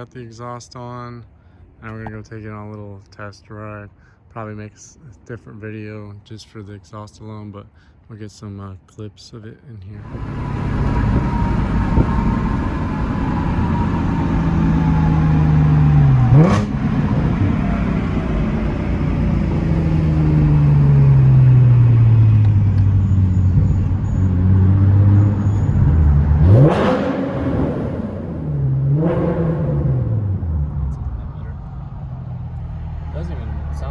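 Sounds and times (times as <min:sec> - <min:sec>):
sharp engine revs: 0:10.0 - 0:31.6
car engine easing off: 0:10.0 - 0:33.9.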